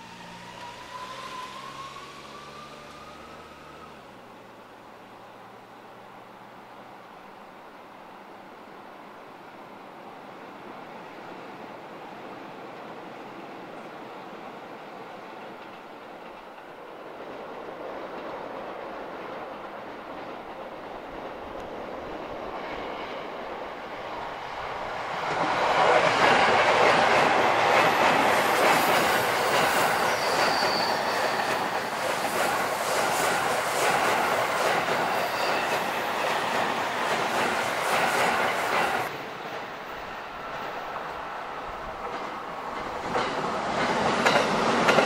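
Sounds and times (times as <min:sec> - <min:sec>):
train wheels rumbling and clicking: 0:15.4 - 0:23.1, 0:24.4 - 0:39.2, 0:40.4 - 0:45.0
wheels squealing on curve: 0:28.5 - 0:36.8.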